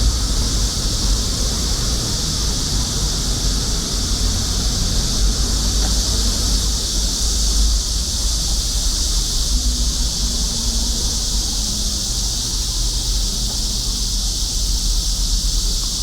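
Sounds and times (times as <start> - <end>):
cicadas droning: 0.0 - 16.0
low outdoor rumble: 0.0 - 16.0.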